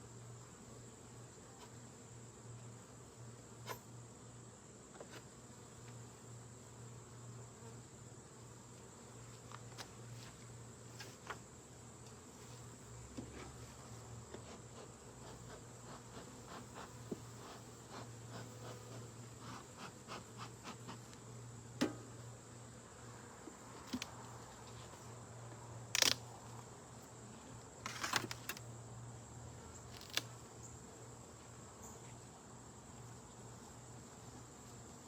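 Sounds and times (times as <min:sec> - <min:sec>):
honeybees buzzing: 0:13.6 - 0:25.4.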